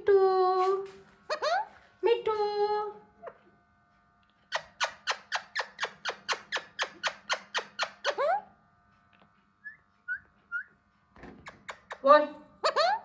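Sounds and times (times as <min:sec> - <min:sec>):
parakeet squawking: 0:01.3 - 0:01.8, 0:04.5 - 0:08.5, 0:12.6 - 0:13.0.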